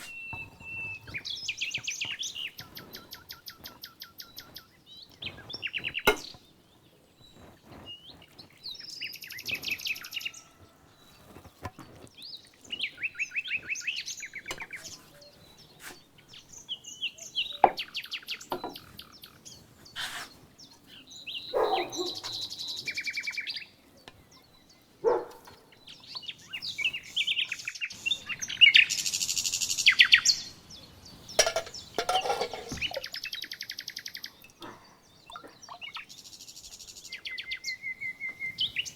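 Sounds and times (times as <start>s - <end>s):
birds singing with trills: 0.0s - 38.9s
sharp bird calls or clicks: 21.6s - 23.0s.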